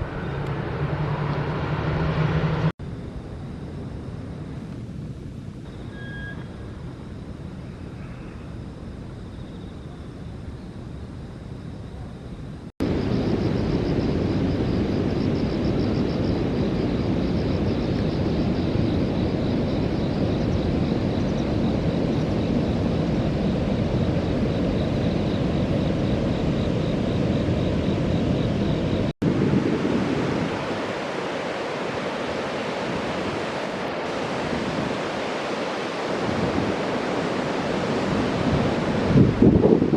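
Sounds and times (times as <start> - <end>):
river rushing: 29.2 - 39.9.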